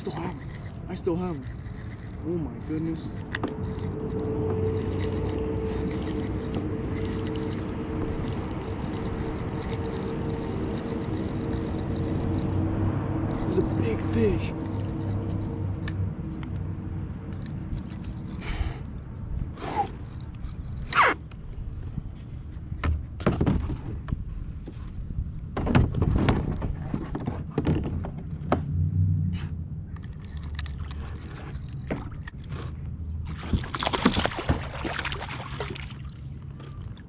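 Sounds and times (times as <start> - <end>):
knocks and rustles in kayak: 21.7 - 28.8, 30.5 - 37.0
water splashing: 33.2 - 37.0.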